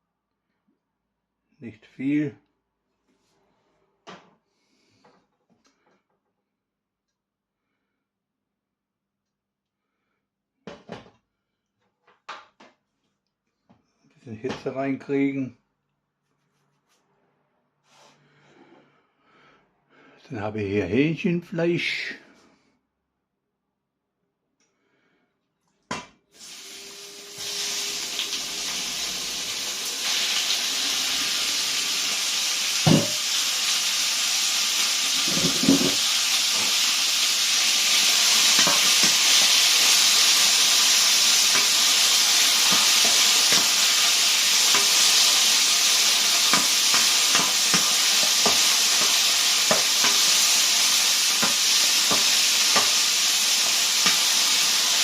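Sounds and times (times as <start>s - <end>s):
chicken sizzling in hot oil: 26.4s - 55.0s
utensil knocking against wok: 32.9s - 33.3s, 38.6s - 39.6s, 46.5s - 50.3s, 51.4s - 53.0s.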